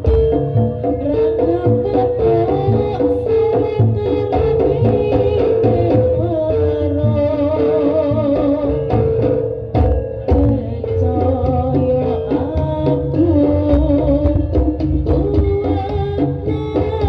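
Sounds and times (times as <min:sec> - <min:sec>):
hand drums beating: 0:00.0 - 0:17.0
wavering melody: 0:00.0 - 0:17.0.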